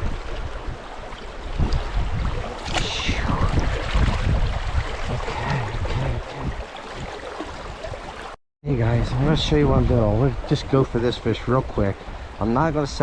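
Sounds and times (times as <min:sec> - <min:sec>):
wind buffeting microphone: 0:00.0 - 0:08.1
creek water rushing: 0:00.0 - 0:08.4.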